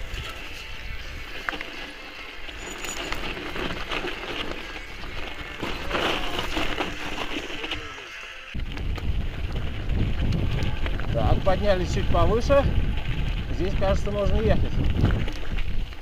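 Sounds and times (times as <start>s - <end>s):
bike rattling: 0.0s - 16.0s
gravel crunching under bike tyres: 0.0s - 16.0s
wind buffeting microphone: 8.6s - 16.0s.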